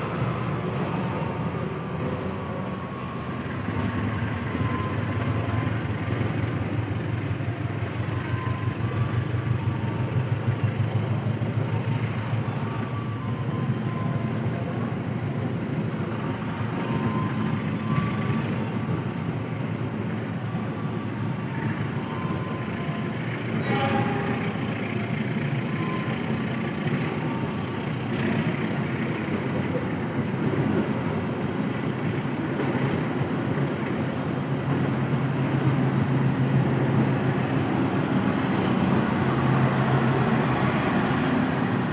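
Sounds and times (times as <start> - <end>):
diesel locomotive engine hum: 0.0 - 41.9
brief high-pitched tone: 21.5 - 25.0.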